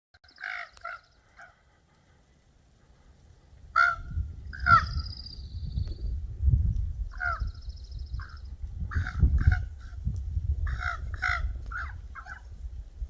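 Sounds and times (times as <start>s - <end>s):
harsh raven calls: 0.2s - 1.7s, 3.7s - 5.1s, 7.1s - 7.6s, 8.2s - 10.0s, 10.6s - 12.5s
ravens croaking: 0.2s - 2.3s, 3.7s - 5.0s, 7.1s - 7.6s, 8.2s - 10.0s, 10.6s - 12.5s.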